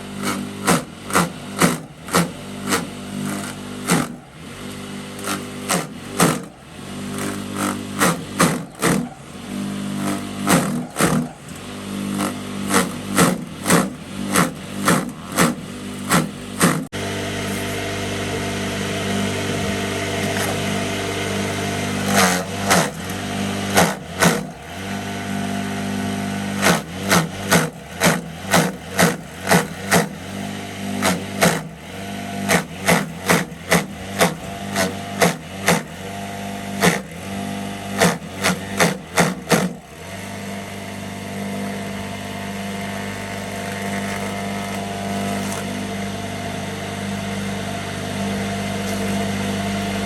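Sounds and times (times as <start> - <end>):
motor running steadily: 0.0 - 50.0
sharp knocks: 12.2 - 16.9.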